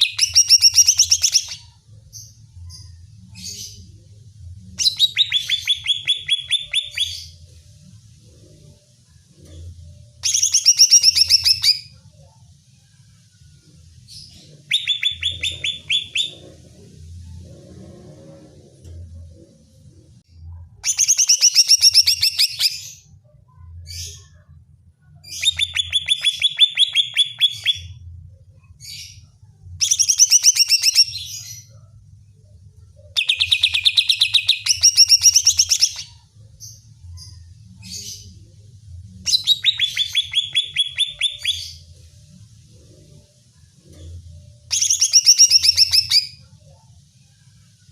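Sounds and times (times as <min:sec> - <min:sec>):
bird singing sharp repeated notes: 0:04.8 - 0:07.4, 0:14.6 - 0:16.5, 0:20.8 - 0:23.0, 0:25.4 - 0:28.0, 0:39.3 - 0:41.9, 0:44.7 - 0:46.4.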